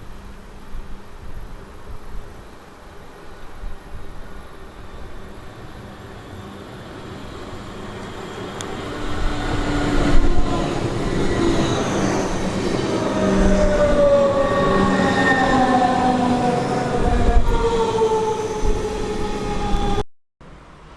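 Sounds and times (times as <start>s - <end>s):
train running past: 4.3s - 20.0s
whining tones falling in pitch: 8.0s - 20.0s.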